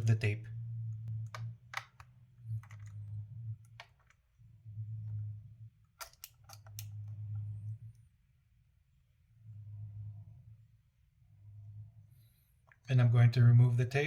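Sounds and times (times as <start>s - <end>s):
low hum: 0.0s - 14.0s
clicks of handling plastic parts: 1.3s - 3.0s, 6.0s - 7.2s.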